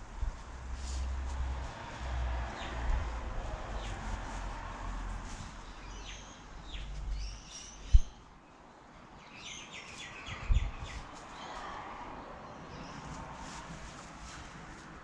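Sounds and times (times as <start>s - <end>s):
wind rumble on microphone: 0.0s - 8.3s, 9.9s - 15.0s
small birds chirping: 3.7s - 4.4s, 5.3s - 11.8s.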